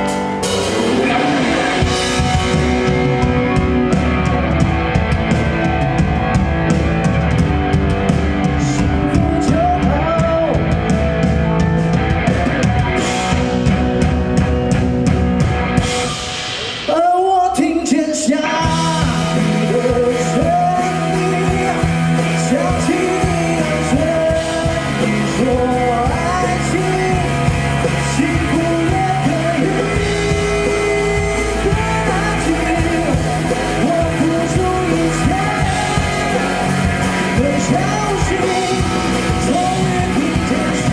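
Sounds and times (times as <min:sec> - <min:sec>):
pop-rock band playing: 0:00.0 - 0:40.9
person singing: 0:08.1 - 0:13.8, 0:16.6 - 0:40.9.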